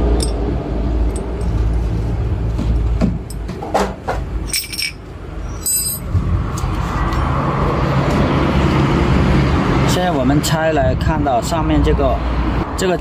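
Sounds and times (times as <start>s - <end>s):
metal parts clinking and knocking: 0.0s - 0.4s, 1.0s - 1.8s, 4.4s - 6.1s.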